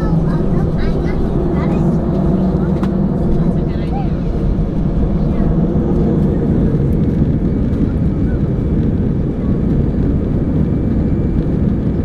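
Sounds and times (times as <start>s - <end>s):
rushing air: 0.0s - 9.2s
jet engines rumbling in cabin: 0.0s - 12.0s.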